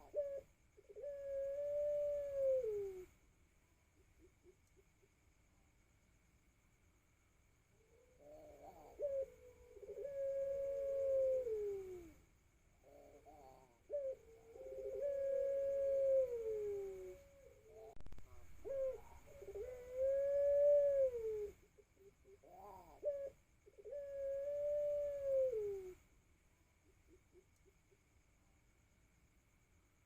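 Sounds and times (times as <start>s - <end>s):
dove cooing: 0.0s - 3.1s, 7.8s - 12.2s, 12.8s - 26.0s.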